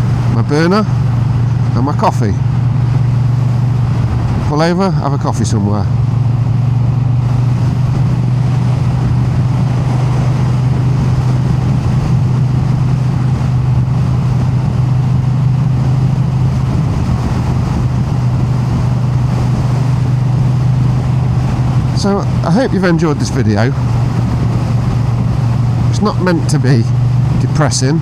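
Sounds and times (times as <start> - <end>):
wind noise on microphone: 0.0 - 4.9, 5.5 - 28.0
motorcycle engine cruising: 0.0 - 28.0.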